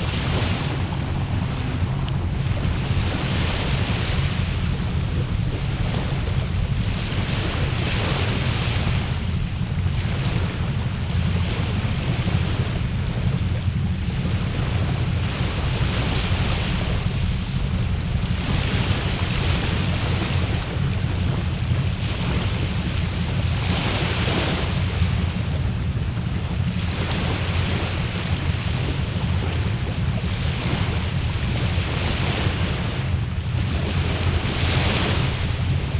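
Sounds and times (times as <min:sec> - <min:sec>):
bonfire rumbling and crackling: 0:00.0 - 0:23.0
high-pitched whine: 0:00.0 - 0:35.9.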